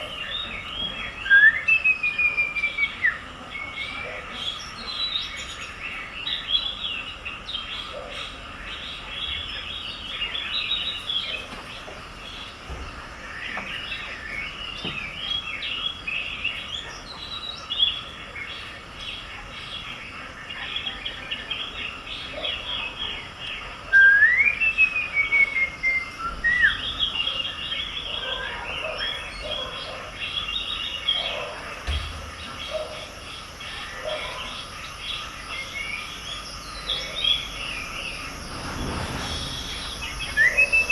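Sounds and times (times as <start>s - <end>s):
whistled bird call: 0.0s - 3.3s, 23.9s - 28.0s, 39.2s - 40.9s
small birds chirping: 0.0s - 40.9s.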